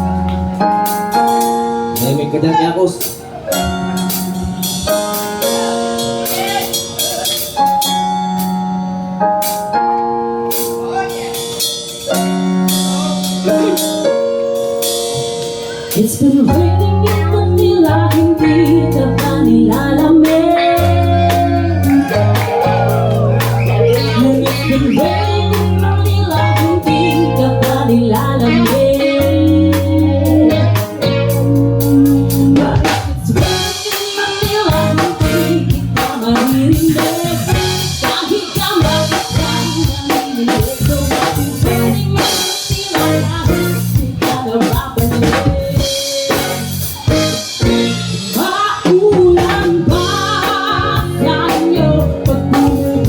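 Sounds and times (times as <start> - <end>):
band playing pop music: 0.0 - 53.0.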